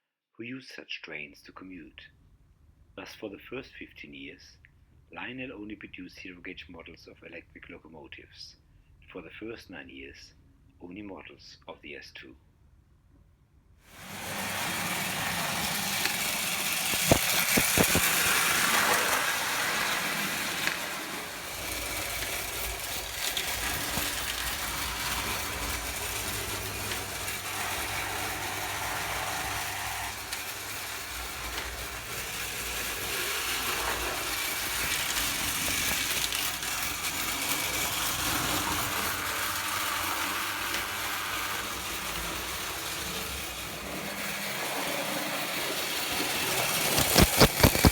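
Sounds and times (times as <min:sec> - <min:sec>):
toy train motor whirring: 0:13.9 - 0:47.9.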